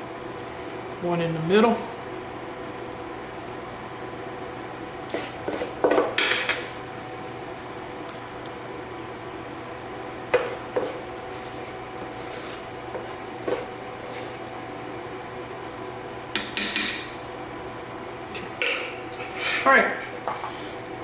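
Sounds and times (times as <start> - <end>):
faint steady hum: 0.0 - 21.0
spoon scraping dough in bowl: 5.1 - 6.7, 10.4 - 14.5.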